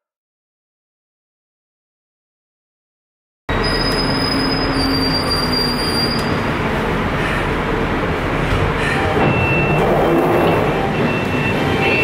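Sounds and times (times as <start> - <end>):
high wheel squeal: 3.5 - 6.6, 8.8 - 12.0
train wheels rumbling on track: 3.5 - 12.0.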